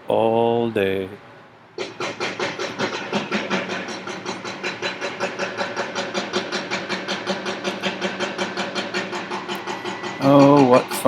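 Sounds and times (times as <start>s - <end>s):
steady low hum: 0.0s - 11.0s
jackhammer pounding: 1.8s - 11.0s.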